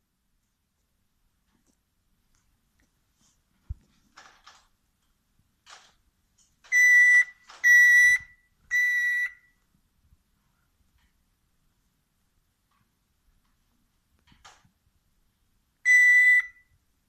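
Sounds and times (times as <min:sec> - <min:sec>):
parrot imitating beeps: 0:06.7 - 0:09.4, 0:15.9 - 0:16.6.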